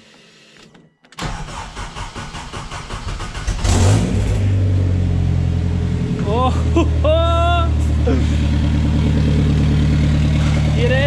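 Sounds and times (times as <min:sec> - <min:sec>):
loud engine idling: 0:04.8 - 0:11.0.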